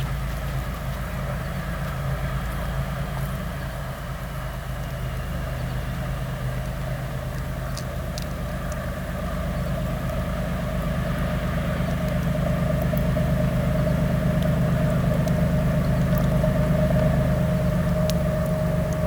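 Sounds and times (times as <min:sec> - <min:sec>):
diesel locomotive engine running: 0:00.0 - 0:19.0.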